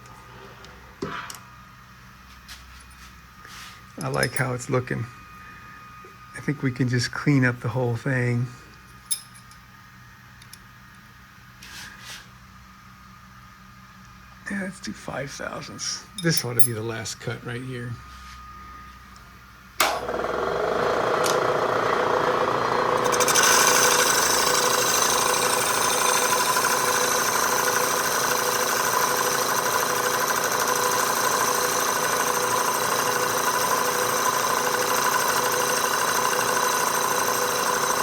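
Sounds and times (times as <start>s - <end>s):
milling machine motor hum: 19.8s - 38.0s.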